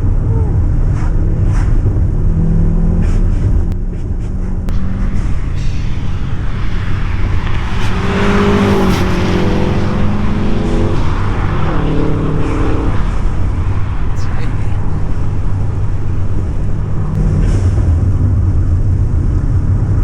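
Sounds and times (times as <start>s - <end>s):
road and wind noise: 4.6s - 17.3s
car engine pulling hard: 4.7s - 17.2s.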